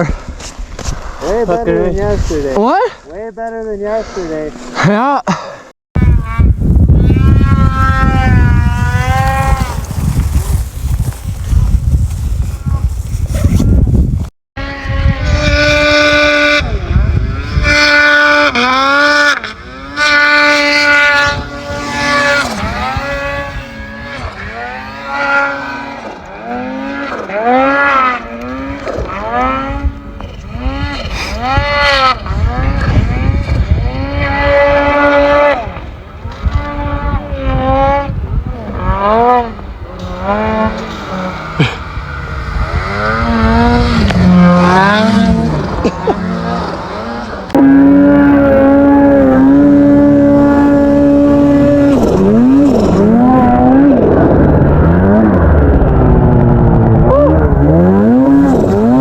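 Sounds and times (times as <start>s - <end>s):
snowmobile engine revving: 0.0s - 5.3s, 6.0s - 11.8s, 14.6s - 59.0s.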